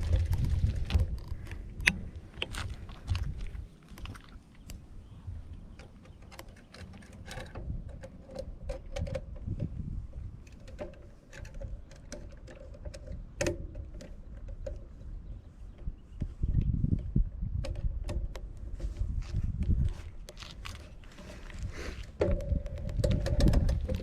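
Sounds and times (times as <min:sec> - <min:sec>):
mountain bike rattling and clicking: 0:00.0 - 0:04.3, 0:19.9 - 0:24.0
wind rumble on microphone: 0:00.0 - 0:24.0.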